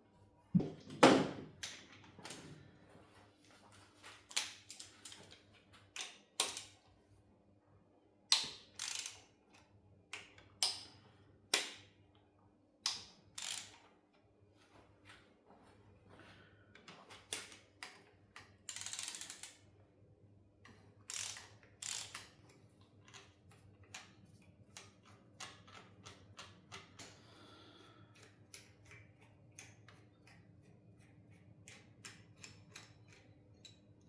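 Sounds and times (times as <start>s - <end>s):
metallic clicks and knocks of tools: 4.2s - 6.9s, 8.3s - 11.9s, 12.8s - 13.9s, 16.8s - 19.7s, 20.6s - 27.2s, 28.1s - 34.0s.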